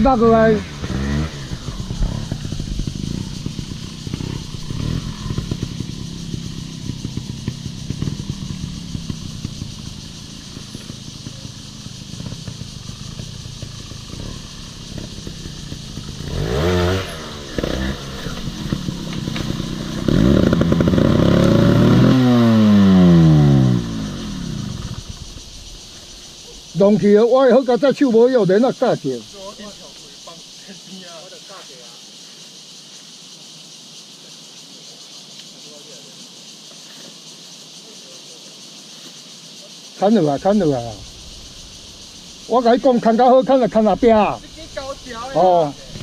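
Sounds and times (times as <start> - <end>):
engine clattering: 0.0 - 27.2, 40.3 - 46.0
motorcycle engine revving: 0.0 - 30.7, 40.0 - 46.0.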